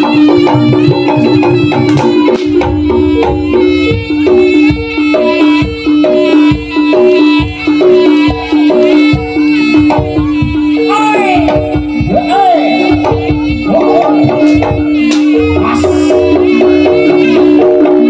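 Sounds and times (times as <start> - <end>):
struck pitched notes: 0.0 - 5.4
drum strokes: 0.0 - 18.0.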